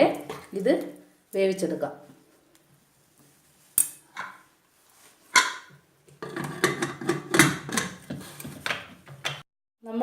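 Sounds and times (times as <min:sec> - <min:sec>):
metal cookware clattering: 0:05.4 - 0:08.0.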